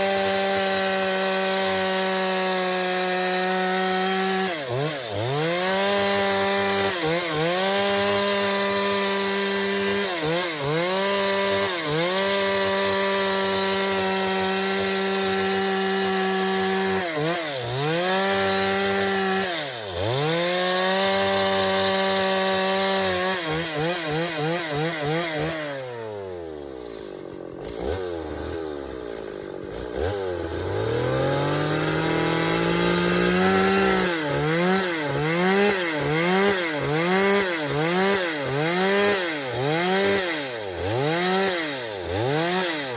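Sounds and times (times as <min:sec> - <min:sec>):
chainsaw cutting wood: 0:00.0 - 0:42.9.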